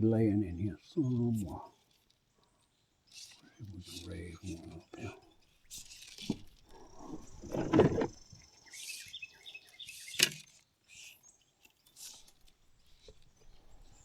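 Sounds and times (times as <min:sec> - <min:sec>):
fishing reel whine: 0:03.0 - 0:14.0
bird chirps: 0:08.1 - 0:10.2.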